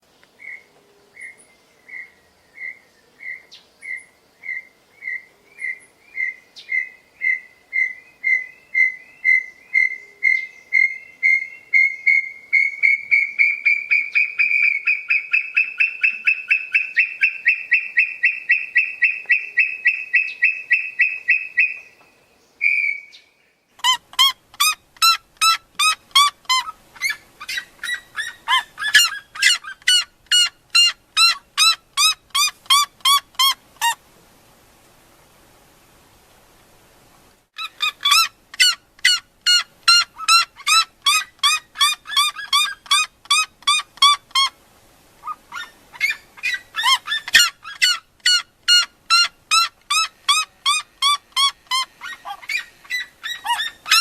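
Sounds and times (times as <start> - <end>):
bird whistled trill: 22.6 - 23.3
bird harsh calls: 23.8 - 34.0, 37.6 - 44.5, 45.2 - 54.0.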